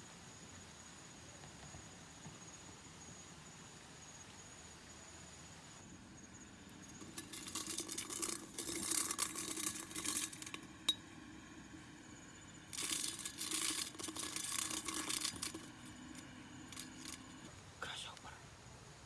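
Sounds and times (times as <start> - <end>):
dry rustling and crinkling: 12.6 - 17.6.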